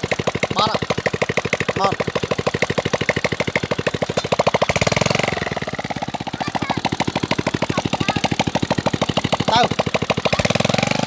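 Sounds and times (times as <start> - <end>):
small engine chugging: 0.0 - 11.0.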